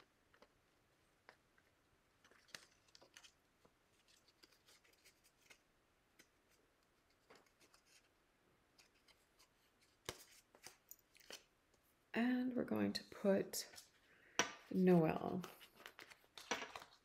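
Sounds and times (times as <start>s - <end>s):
paper pieces clicking and rustling: 15.4s - 17.0s.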